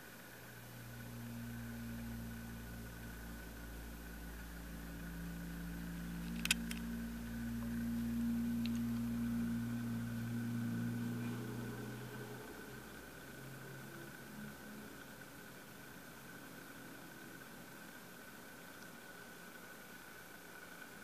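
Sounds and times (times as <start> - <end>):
sharp click: 6.2 - 6.9.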